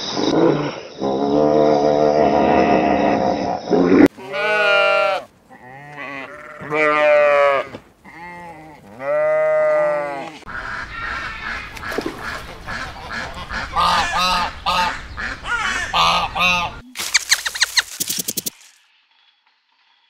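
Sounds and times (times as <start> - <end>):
sheep bleating: 4.1 - 10.4
ducks quacking: 10.5 - 17.9.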